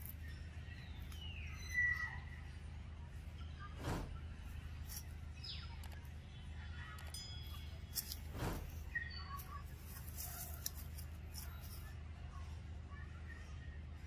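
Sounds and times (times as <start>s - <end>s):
birds chirping: 0.0s - 14.0s
steady low hum: 0.0s - 14.0s
light clicks and rustles: 6.9s - 12.0s.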